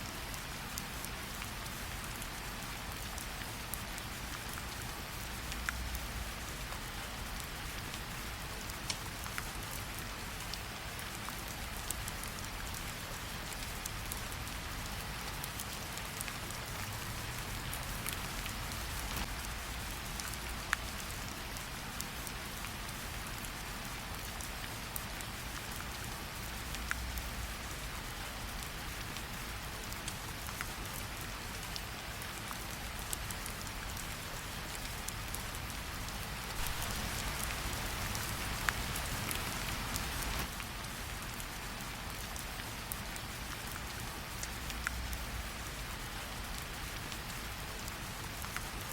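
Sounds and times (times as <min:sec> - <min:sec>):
steady rain: 0:00.0 - 0:48.9
fireplace crackles: 0:36.3 - 0:42.3.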